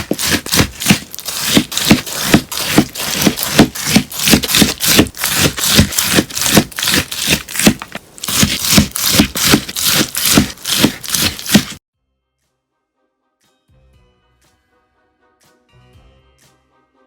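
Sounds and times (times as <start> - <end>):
crunchy slime crackling: 0.0 - 11.8.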